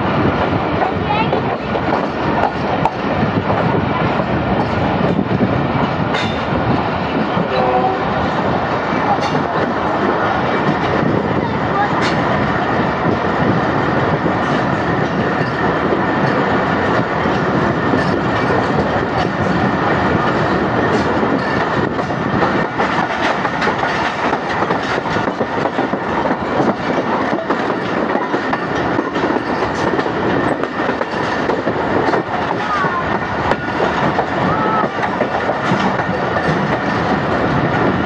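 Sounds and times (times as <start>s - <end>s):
clickety-clack over rail joints: 0.0s - 38.0s
train wheels rumbling on rails: 0.0s - 38.0s.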